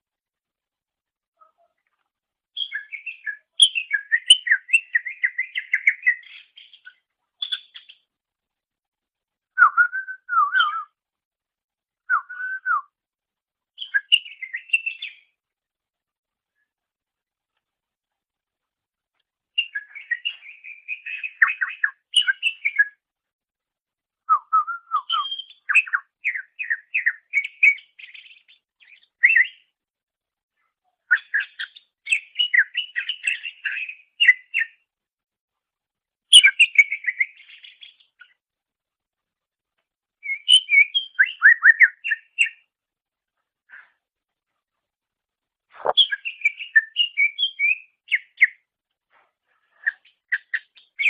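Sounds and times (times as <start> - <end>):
bird chirping and whistling: 9.6 - 10.9, 19.6 - 22.9, 24.3 - 28.2, 36.3 - 37.8, 40.2 - 42.6, 45.8 - 48.5.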